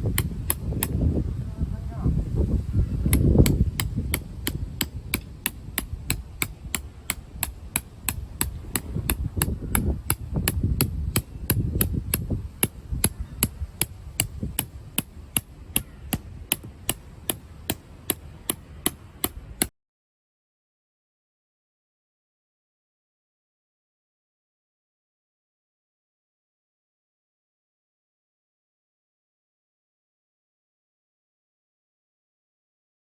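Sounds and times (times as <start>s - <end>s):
low rumble: 7.3s - 14.6s.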